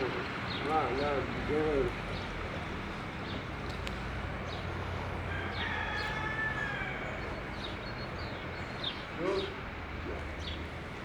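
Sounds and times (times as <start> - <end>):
distant rooster crowing: 5.2 - 7.5.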